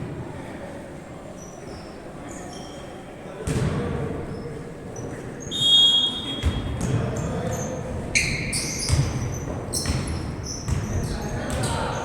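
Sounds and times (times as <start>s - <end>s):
sneakers squeaking on court: 1.4s - 12.0s
basketball thumping on floor: 9.8s - 11.7s.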